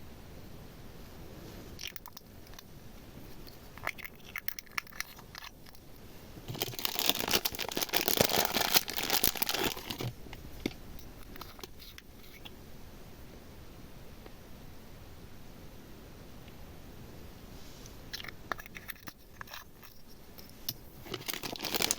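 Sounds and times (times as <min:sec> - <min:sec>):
crinkly crackling handling: 0:03.2 - 0:12.5, 0:17.7 - 0:21.9.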